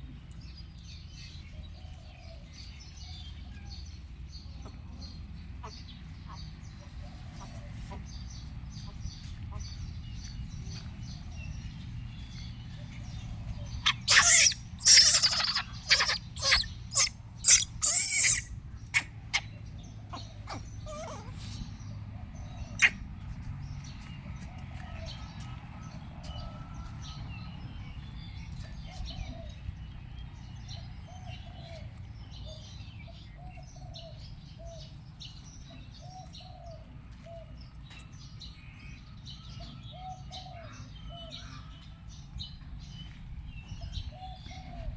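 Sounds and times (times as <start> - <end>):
small animal chirping: 13.8 - 19.5, 22.8 - 23.0.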